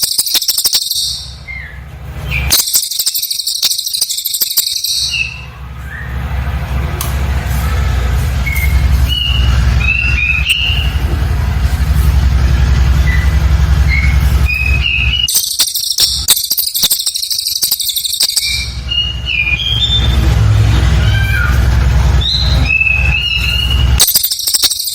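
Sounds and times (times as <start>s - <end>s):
high rapid bird rattle: 0.0s - 1.6s, 2.2s - 5.4s, 9.1s - 19.1s, 22.2s - 24.9s
bird whistled chirps: 0.0s - 6.2s, 8.4s - 11.0s, 13.0s - 20.3s, 22.2s - 24.9s
steady low hum: 0.0s - 24.9s.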